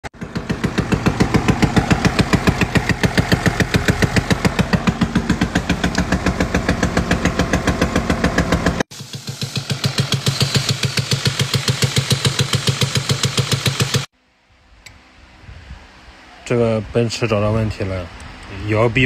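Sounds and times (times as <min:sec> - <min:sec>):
diesel engine idling: 0:00.2 - 0:14.1
engine knocking: 0:00.2 - 0:14.1.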